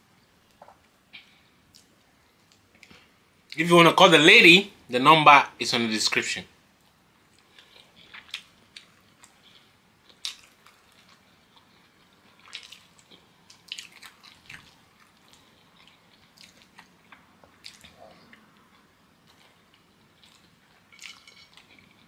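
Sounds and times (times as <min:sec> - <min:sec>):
wet chewing and lip-smacking: 0:07.3 - 0:22.0.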